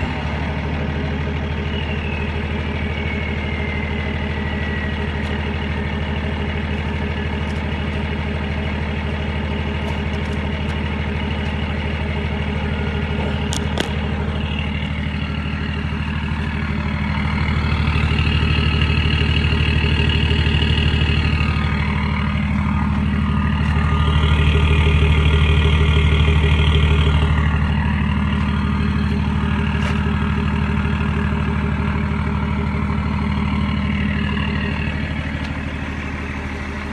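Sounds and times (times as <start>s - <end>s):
diesel car engine revving: 0.0s - 36.9s.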